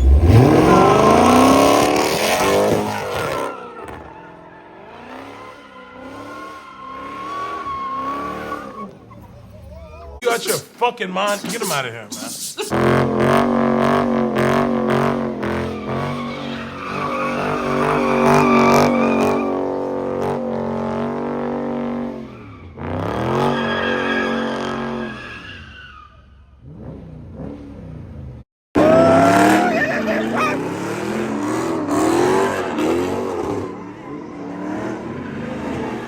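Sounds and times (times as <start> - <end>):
car engine revving high: 0.0 - 3.5, 12.7 - 22.2, 28.8 - 36.0
tires squealing: 0.0 - 10.2, 12.7 - 27.5, 28.8 - 36.0.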